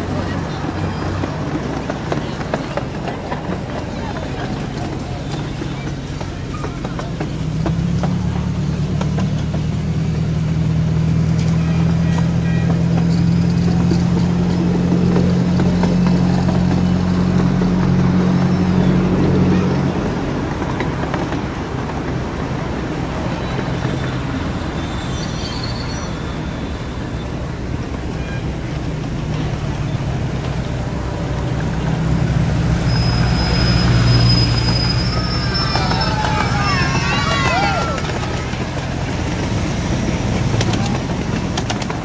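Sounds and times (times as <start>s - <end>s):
train wheels rumbling on rails: 0.0s - 42.0s
thin high squeal: 24.8s - 26.8s, 32.8s - 38.0s.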